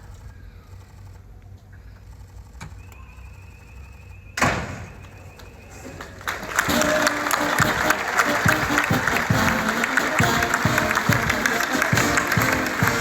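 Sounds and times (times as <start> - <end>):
applause: 5.4 - 13.0
band music: 6.5 - 13.0.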